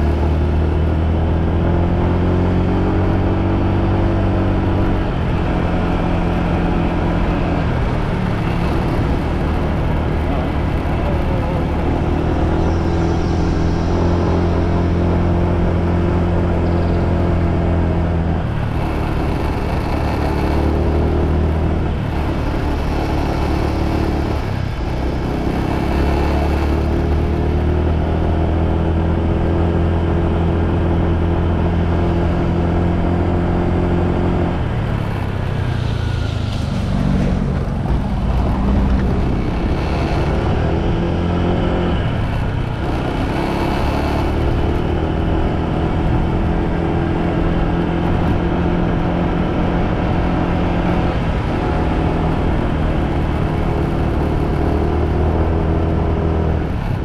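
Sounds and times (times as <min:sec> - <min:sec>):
motorbike engine running: 0:00.0 - 0:57.0
road noise: 0:00.0 - 0:57.0.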